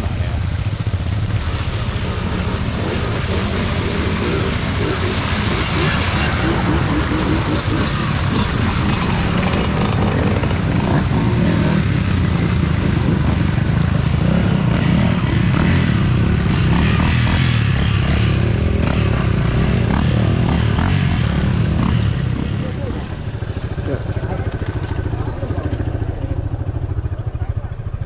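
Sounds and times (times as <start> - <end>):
off-road motorcycle engines droning: 0.0 - 28.0.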